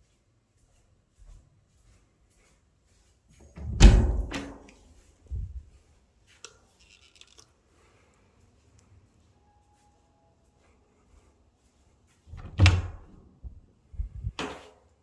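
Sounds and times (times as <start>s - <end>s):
loud thump: 3.6s - 4.5s
soft low thump: 3.6s - 4.5s.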